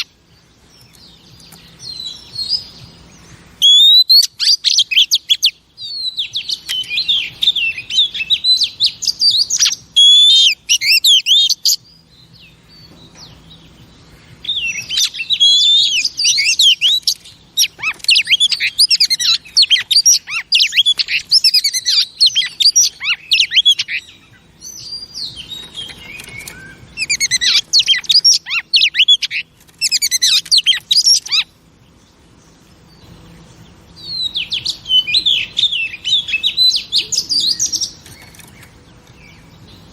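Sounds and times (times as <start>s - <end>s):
bird singing whistled phrases: 3.6s - 11.8s, 14.4s - 31.5s, 34.0s - 38.0s.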